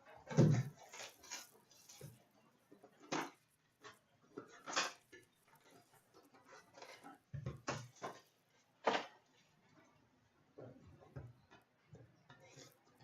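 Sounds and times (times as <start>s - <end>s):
packaging crinkling and rustling: 0.3s - 2.4s.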